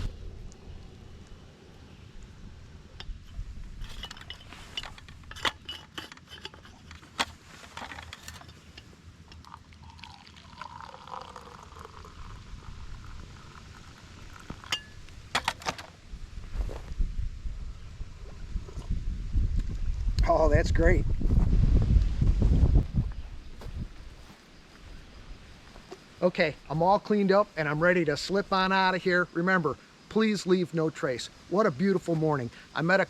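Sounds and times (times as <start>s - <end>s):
liquid being poured: 9.3s - 15.0s.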